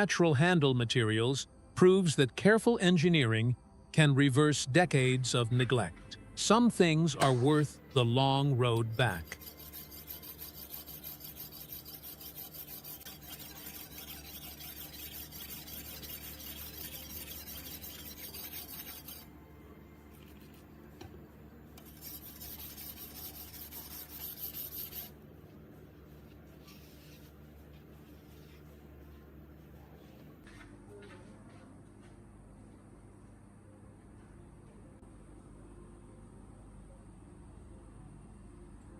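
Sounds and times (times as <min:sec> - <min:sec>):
knife rasping on whetstone: 0:09.0 - 0:19.3, 0:21.8 - 0:25.2.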